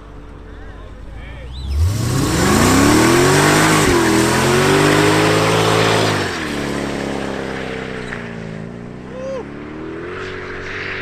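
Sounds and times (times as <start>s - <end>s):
spinning tyres hissing: 1.0s - 8.7s
car engine revving hard: 1.6s - 11.0s.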